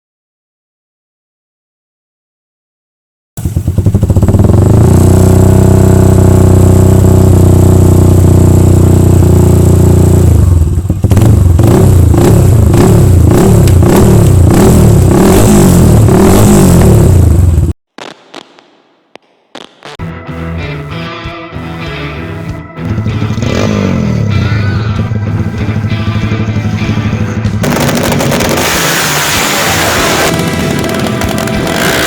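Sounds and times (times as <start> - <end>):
motorcycle engine idling and revving: 3.4 - 17.8, 22.8 - 32.0.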